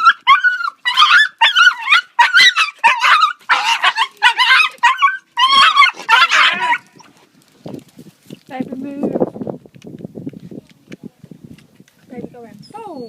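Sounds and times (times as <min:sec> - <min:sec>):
dog yelping and whining: 0:00.0 - 0:07.2, 0:12.6 - 0:13.0.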